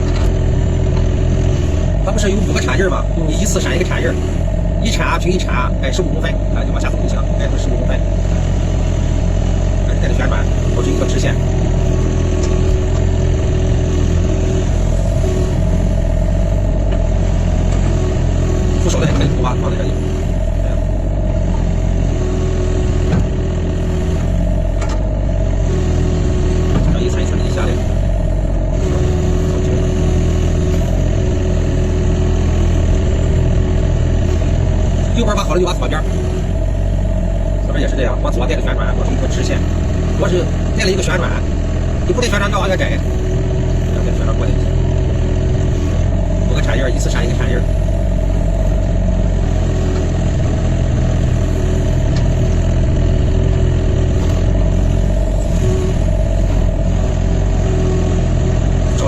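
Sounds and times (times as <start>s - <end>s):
excavator diesel engine running: 0.0s - 59.0s
faint steady whine: 0.0s - 59.0s.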